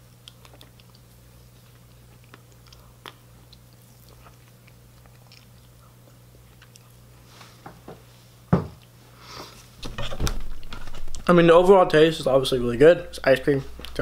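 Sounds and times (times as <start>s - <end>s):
steady low hum: 0.0s - 14.0s
chewing: 0.1s - 7.2s.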